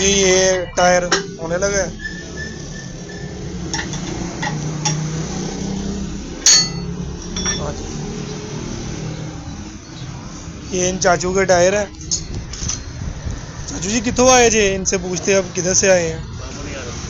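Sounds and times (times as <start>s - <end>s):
metallic tool knocks and clinks: 3.8s - 5.1s, 6.4s - 7.7s.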